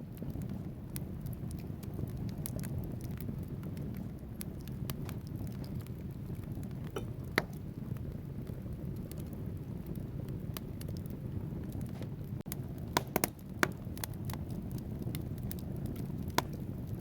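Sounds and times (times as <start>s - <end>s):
fire flames rumbling: 0.0s - 17.0s
logs crackling and popping: 0.0s - 17.0s.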